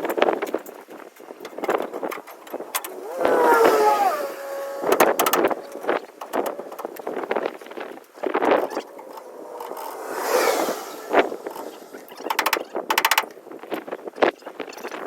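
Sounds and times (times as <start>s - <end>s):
metal knocks and clanks: 0.0s - 3.0s, 4.9s - 7.4s, 12.2s - 13.4s.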